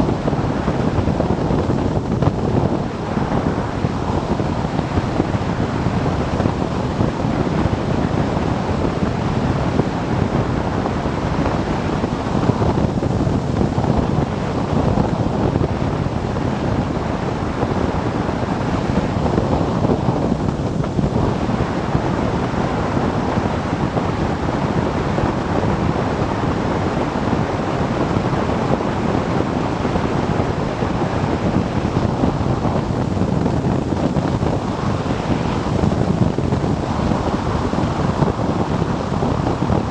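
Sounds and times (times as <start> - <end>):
road noise: 0.0 - 39.9
wind buffeting microphone: 0.0 - 39.9.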